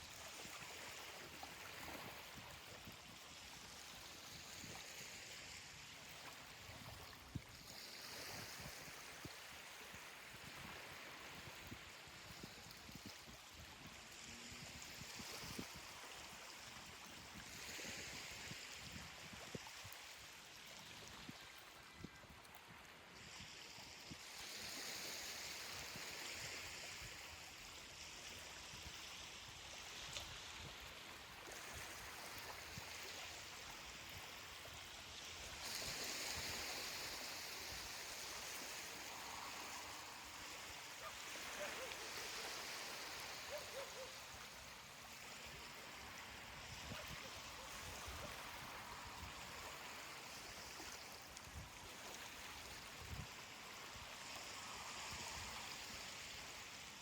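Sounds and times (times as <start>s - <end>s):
ocean surf washing onto beach: 35.6s - 44.3s.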